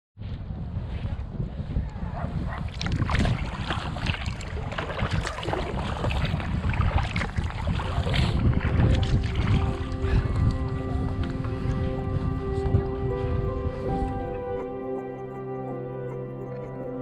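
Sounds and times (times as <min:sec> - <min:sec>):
wind buffeting microphone: 0:00.2 - 0:15.5
paddle splashes and drips: 0:02.7 - 0:12.2.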